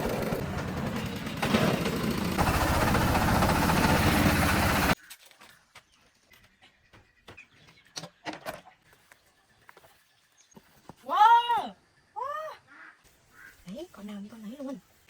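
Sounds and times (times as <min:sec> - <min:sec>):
small engine running: 0:00.0 - 0:05.0.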